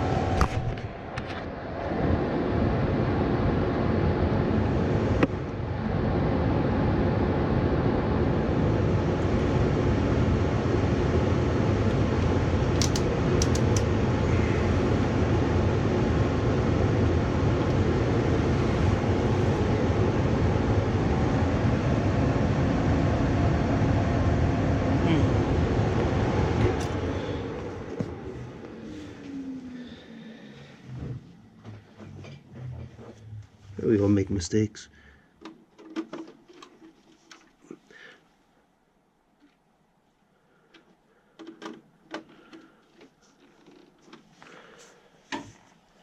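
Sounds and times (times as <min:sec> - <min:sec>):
gas furnace blower running: 0:00.0 - 0:35.2
sharp click: 0:12.8 - 0:13.9.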